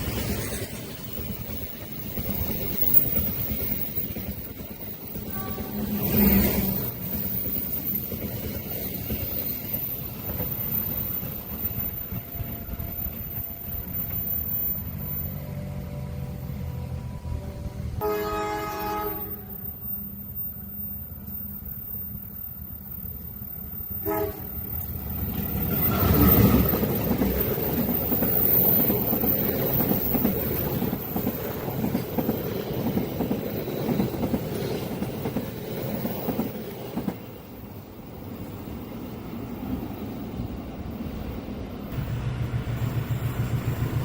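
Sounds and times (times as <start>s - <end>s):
train rumble passing: 0.0s - 44.0s
train horn: 5.2s - 6.7s, 15.3s - 19.8s, 24.0s - 24.6s, 25.8s - 26.8s.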